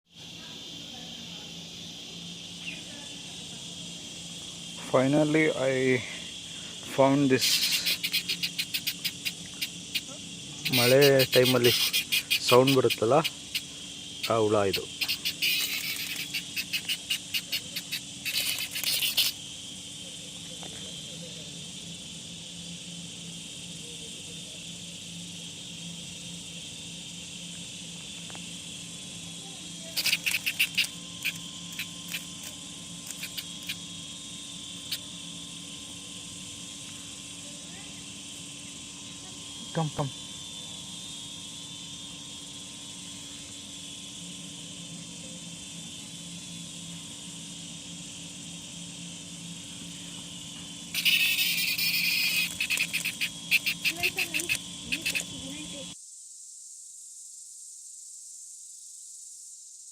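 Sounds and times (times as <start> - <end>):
cicada buzzing: 0.0 - 59.9
high-pitched insect chirring: 0.0 - 59.9.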